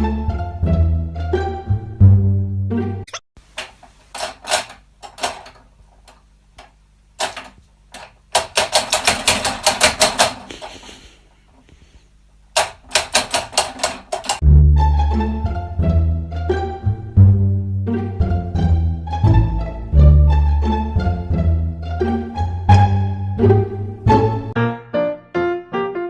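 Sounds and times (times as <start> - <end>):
sharp clicks: 3.1 - 10.7, 12.5 - 14.4.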